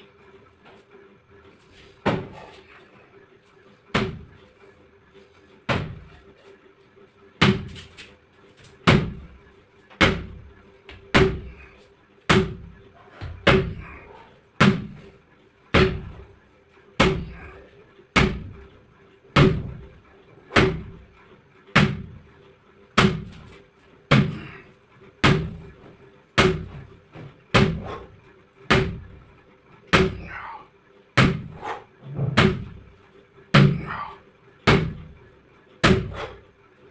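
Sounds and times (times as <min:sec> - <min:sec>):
sledgehammer striking a tyre: 0:02.0 - 0:02.5, 0:03.9 - 0:04.3, 0:05.7 - 0:06.1, 0:07.4 - 0:07.9, 0:08.8 - 0:09.3, 0:10.0 - 0:10.4, 0:11.1 - 0:11.6, 0:12.3 - 0:13.9, 0:14.6 - 0:15.0, 0:15.7 - 0:16.2, 0:17.0 - 0:17.5, 0:18.2 - 0:18.6, 0:19.4 - 0:19.8, 0:20.5 - 0:21.0, 0:21.8 - 0:22.2, 0:23.0 - 0:23.5, 0:24.1 - 0:24.6, 0:25.2 - 0:25.6, 0:26.4 - 0:26.9, 0:27.5 - 0:28.1, 0:28.7 - 0:29.1, 0:29.9 - 0:30.4, 0:31.2 - 0:31.6, 0:32.2 - 0:32.8, 0:33.5 - 0:34.0, 0:34.7 - 0:35.1, 0:35.8 - 0:36.4.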